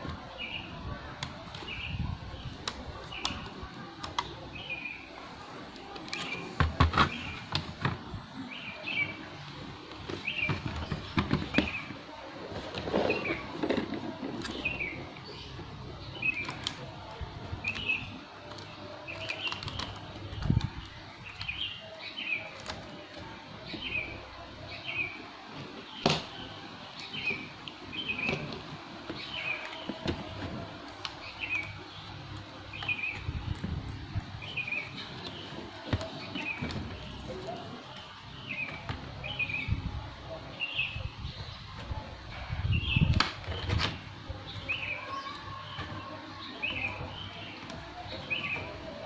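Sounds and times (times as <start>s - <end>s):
plastic laptop parts clicking: 17.7s - 21.5s.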